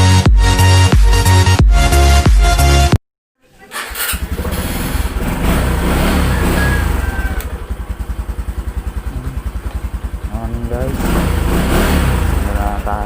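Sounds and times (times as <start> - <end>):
motorcycle engine idling: 3.7 - 13.0.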